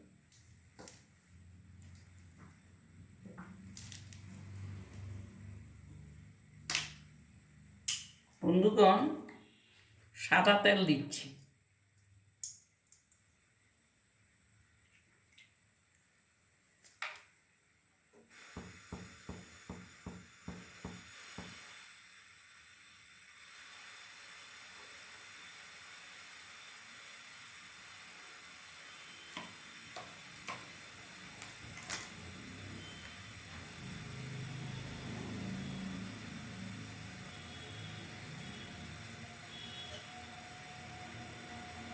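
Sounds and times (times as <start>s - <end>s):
oil hissing in pan: 18.2s - 41.9s.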